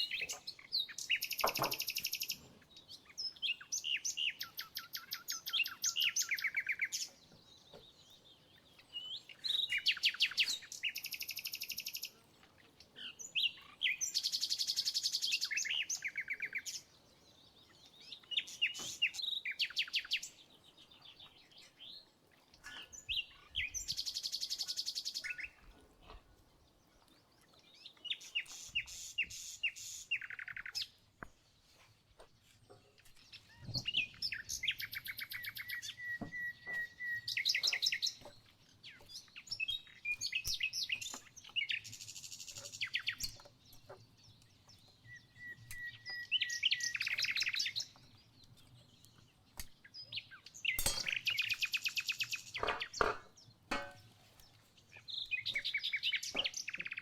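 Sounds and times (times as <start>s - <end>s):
songbird singing: 0.0s - 57.0s.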